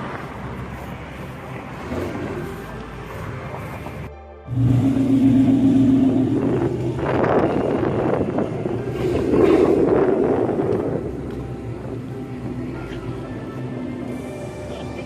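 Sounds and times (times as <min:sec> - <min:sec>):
car engine running: 0:04.5 - 0:15.0.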